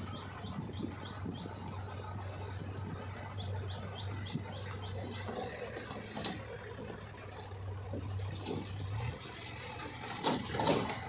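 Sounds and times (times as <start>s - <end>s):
bird chirping: 0.0s - 1.9s, 3.2s - 6.3s
diesel engine humming: 0.0s - 11.0s.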